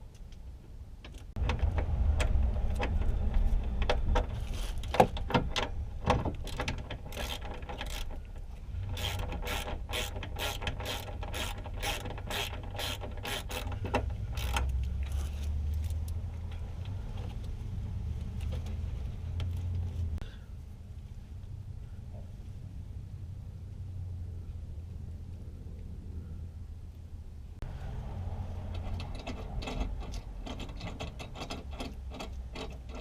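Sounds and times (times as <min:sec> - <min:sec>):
ratchet wrench clicking: 0:07.1 - 0:08.1, 0:08.9 - 0:16.1.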